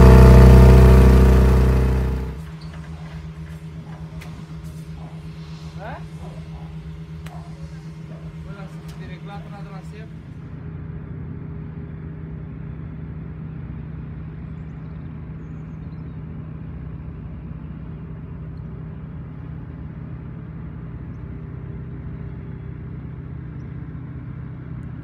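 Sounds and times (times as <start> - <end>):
engine humming: 0.0 - 14.4.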